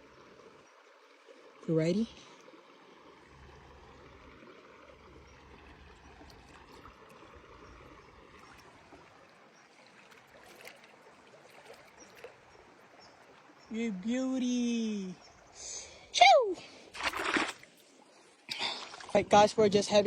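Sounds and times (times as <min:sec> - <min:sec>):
river water trickling: 0:00.0 - 0:20.0
small knocks or splashes: 0:06.1 - 0:13.4, 0:16.9 - 0:17.9, 0:18.5 - 0:19.4.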